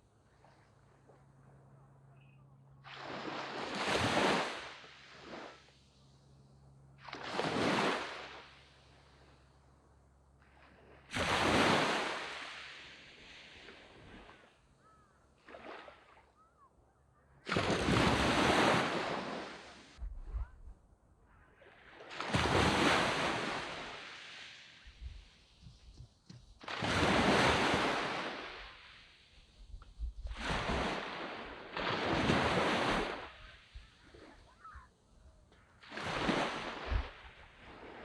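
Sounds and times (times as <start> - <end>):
waves washing up a beach: 2.8 - 6.0, 6.9 - 9.5, 10.4 - 14.7, 15.4 - 16.4, 17.4 - 20.0, 21.6 - 26.0, 26.6 - 29.6, 30.3 - 38.0.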